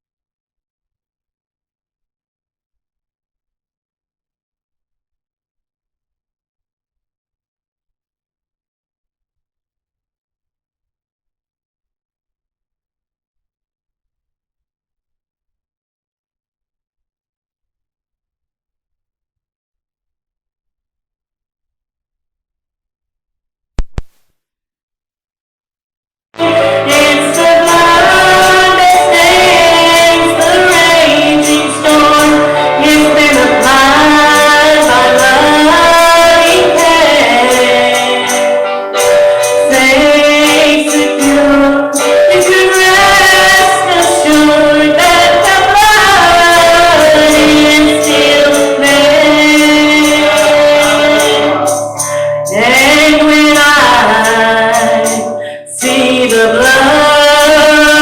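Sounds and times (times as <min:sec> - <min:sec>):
instrumental accompaniment: 0:26.4 - 0:58.0
voices singing worship song: 0:26.4 - 0:58.0
woman singing: 0:26.4 - 0:58.0.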